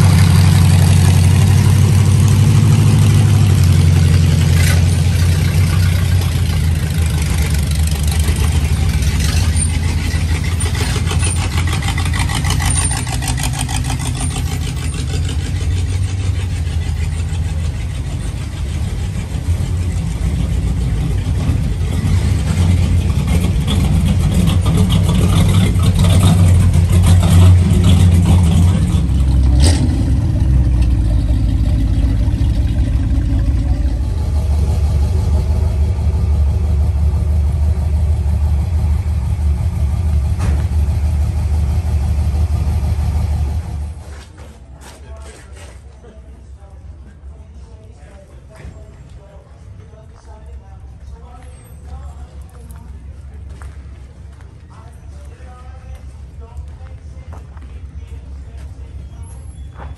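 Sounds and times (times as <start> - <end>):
hot rod engine exhaust rumble: 0.0 - 44.3.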